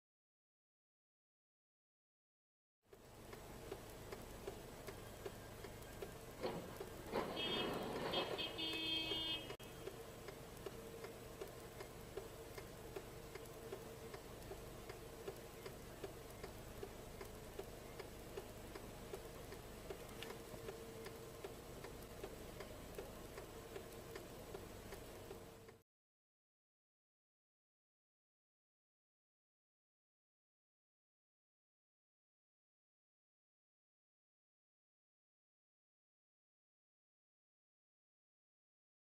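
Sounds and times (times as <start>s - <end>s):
faint regular ticking: 2.9s - 7.2s, 8.7s - 25.8s
low steady hum: 2.9s - 25.8s.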